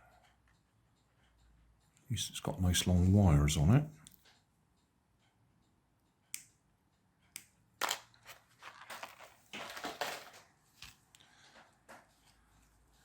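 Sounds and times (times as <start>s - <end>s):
crinkly rustling: 7.8s - 11.7s.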